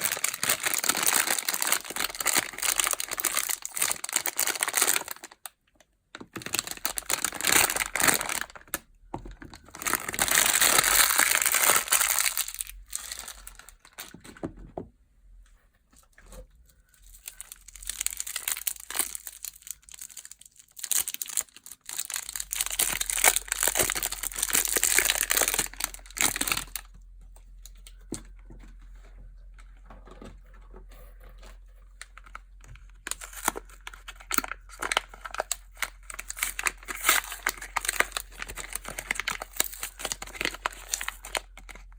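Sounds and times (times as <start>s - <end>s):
wrappers crinkling and tearing: 0.0s - 5.5s, 6.4s - 8.8s, 9.5s - 14.2s, 16.8s - 26.9s, 32.0s - 41.9s.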